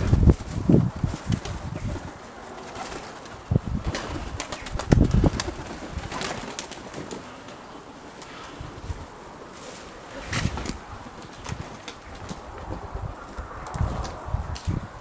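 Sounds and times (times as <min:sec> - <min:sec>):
pigeon wings flapping: 0:00.0 - 0:14.8
wind buffeting microphone: 0:00.0 - 0:15.0.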